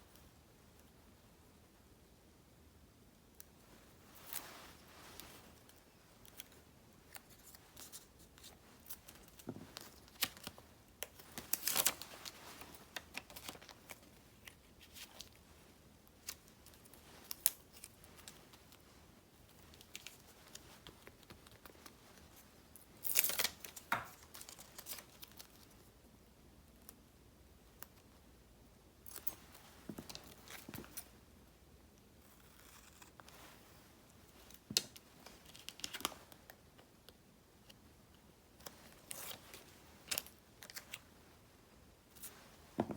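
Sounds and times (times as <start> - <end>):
paper rustling: 4.1 - 15.4.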